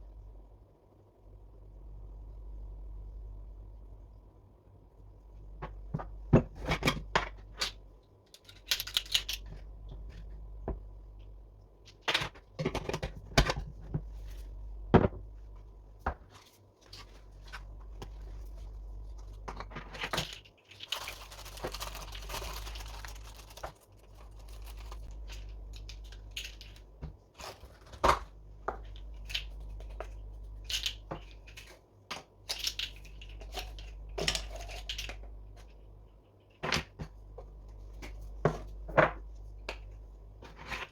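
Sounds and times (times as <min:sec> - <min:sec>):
utensils and containers clicking: 0:07.6 - 0:09.5
rustling: 0:16.2 - 0:28.0.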